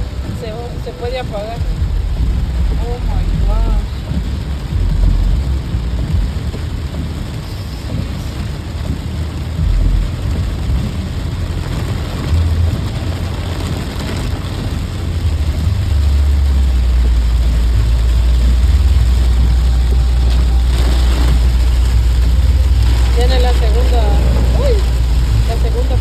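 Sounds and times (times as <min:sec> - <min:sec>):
deep low thunder rumble: 0:00.0 - 0:26.0
heavy rain hissing: 0:00.0 - 0:26.0.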